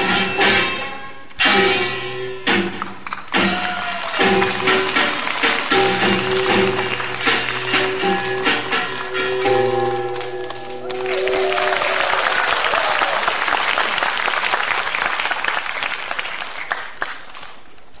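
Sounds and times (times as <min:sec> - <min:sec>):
audience applause: 0:02.8 - 0:17.9
traditional music held notes: 0:03.4 - 0:11.8.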